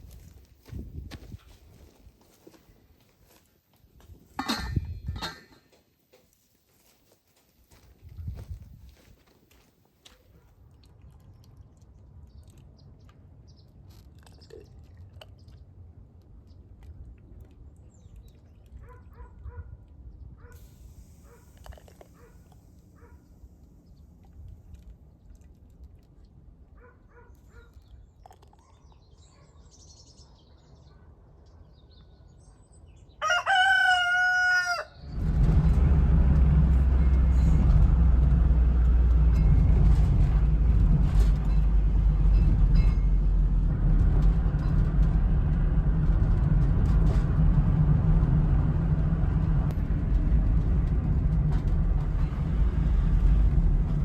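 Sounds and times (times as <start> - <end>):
low machine engine noise: 20.5 - 26.8, 35.0 - 54.0
rooster crowing: 33.2 - 35.1.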